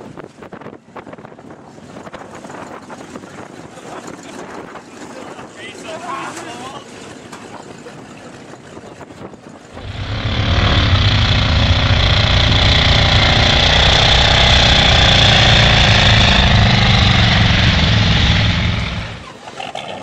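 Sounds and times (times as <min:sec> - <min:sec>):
truck engine running: 0:09.8 - 0:19.3.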